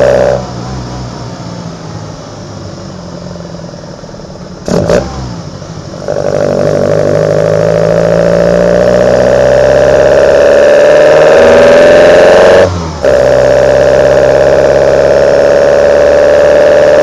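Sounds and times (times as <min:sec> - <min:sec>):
engine intake roar: 0:00.0 - 0:17.0.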